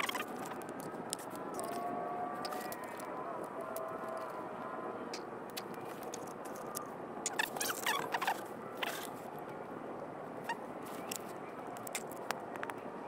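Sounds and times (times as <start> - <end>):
short squeaky wavering sound: 7.3 - 9.1.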